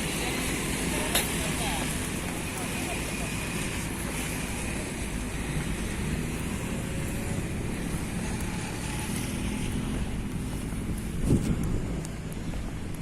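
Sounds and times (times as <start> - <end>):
road and wind noise: 0.0 - 13.0
vehicle engine running: 0.0 - 13.0.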